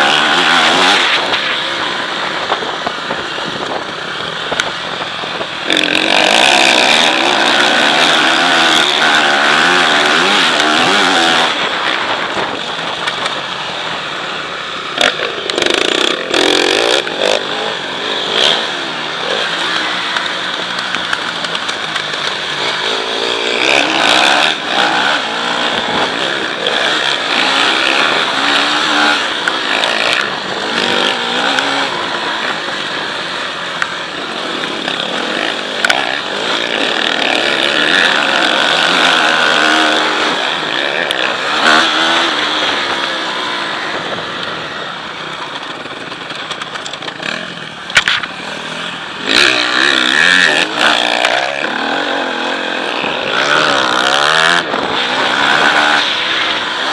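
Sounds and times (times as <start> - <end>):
motocross bike engine revving: 0.0 - 56.9
steady rushing noise: 0.0 - 56.9
sharp clicks: 20.1 - 22.5.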